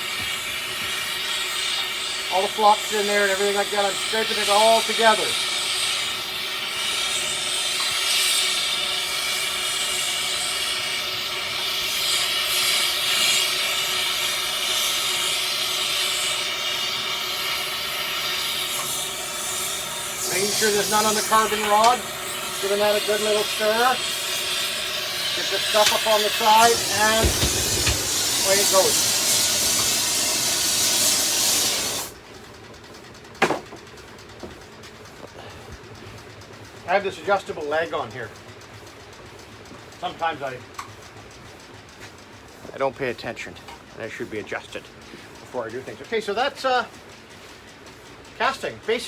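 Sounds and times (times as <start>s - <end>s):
torch flame hissing: 0.0s - 32.2s
sharp knock: 27.1s - 28.1s, 33.4s - 33.8s.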